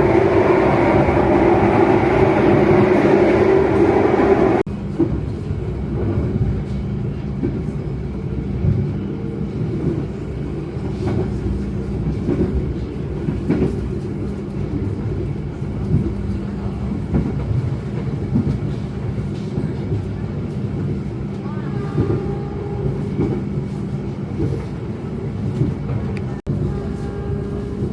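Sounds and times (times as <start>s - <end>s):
train rumbling on track: 0.0s - 27.9s.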